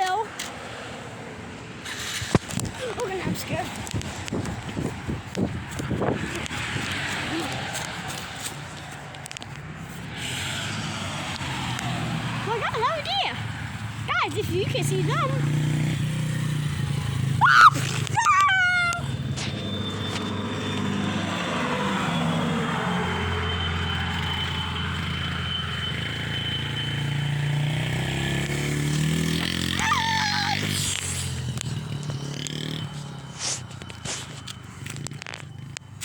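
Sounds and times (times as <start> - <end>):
high-pitched squeals: 16.7 - 36.0
dirt bike engine running: 24.0 - 36.0.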